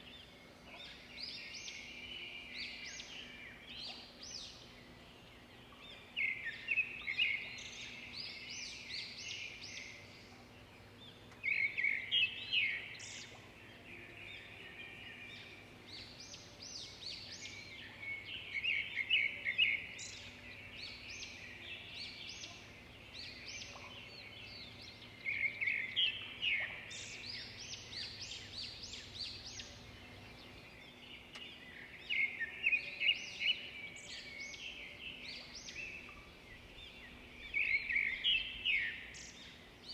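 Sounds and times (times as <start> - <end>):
faint steady background noise: 0.0 - 39.9
songbirds singing: 0.0 - 39.9.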